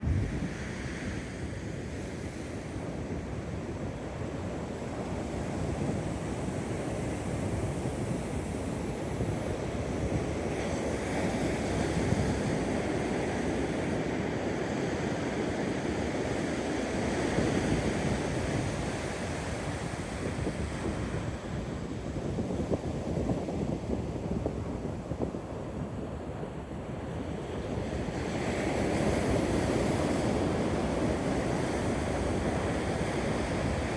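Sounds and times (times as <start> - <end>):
wind buffeting microphone: 0.0 - 1.2.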